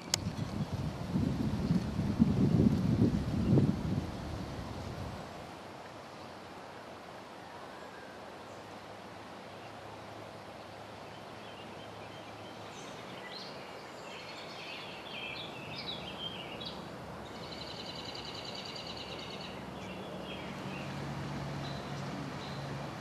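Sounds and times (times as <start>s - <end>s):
songbird singing: 1.6s - 4.4s, 10.5s - 23.0s.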